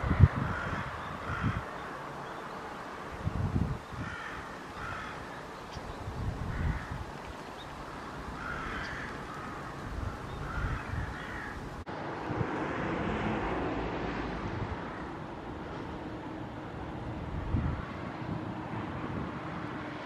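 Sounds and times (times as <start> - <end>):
crows cawing: 0.0 - 2.1, 3.9 - 5.8, 6.4 - 11.7.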